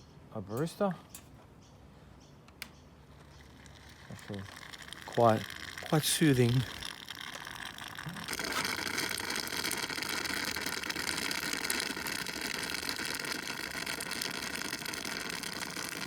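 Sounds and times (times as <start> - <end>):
hiss of draining water: 3.6 - 16.0.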